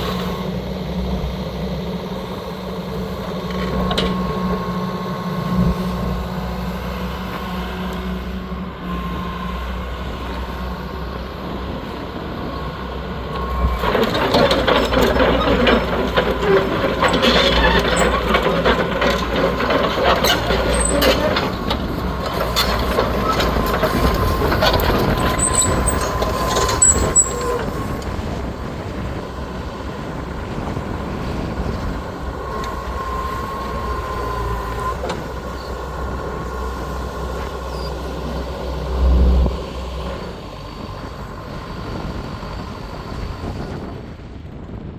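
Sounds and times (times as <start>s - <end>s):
diesel engine running: 0.0s - 44.9s
machine knocks and clanks: 13.8s - 27.8s.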